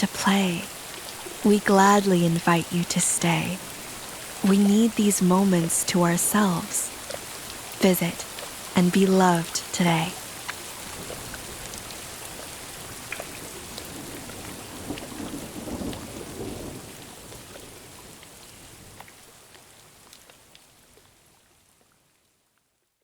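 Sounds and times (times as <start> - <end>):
steady rain: 0.0 - 23.0
rolling thunder: 13.6 - 17.4.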